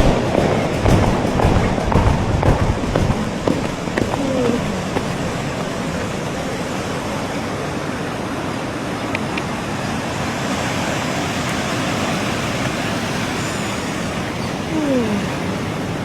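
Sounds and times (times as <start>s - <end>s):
steady rushing noise: 0.0s - 10.3s.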